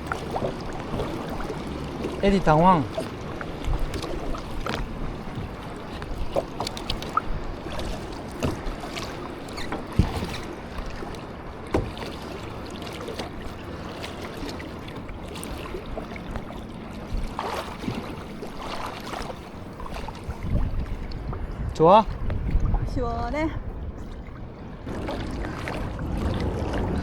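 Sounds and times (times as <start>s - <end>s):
knocks against boat: 0.0s - 19.4s
water splashing around hull: 0.0s - 27.0s.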